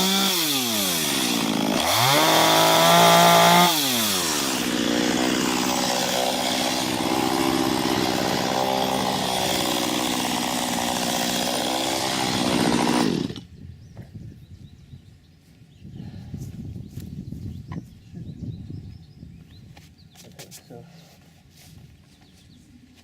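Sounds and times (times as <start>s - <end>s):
two-stroke chainsaw running: 0.0s - 13.5s.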